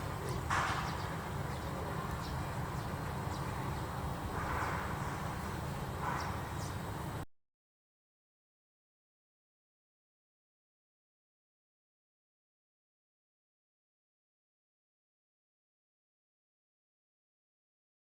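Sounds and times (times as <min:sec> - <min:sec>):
steady low outdoor rumble: 0:00.0 - 0:07.3.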